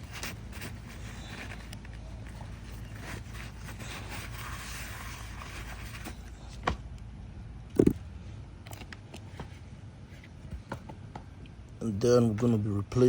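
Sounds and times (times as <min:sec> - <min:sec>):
rubbing and scraping: 0:00.0 - 0:06.6
parts knocking down: 0:07.7 - 0:08.0.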